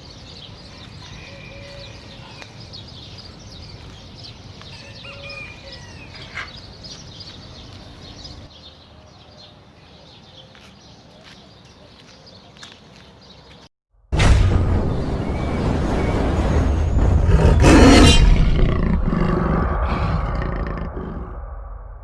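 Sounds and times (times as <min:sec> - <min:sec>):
small birds chirping: 0:00.0 - 0:13.7
low outdoor rumble: 0:14.2 - 0:22.0.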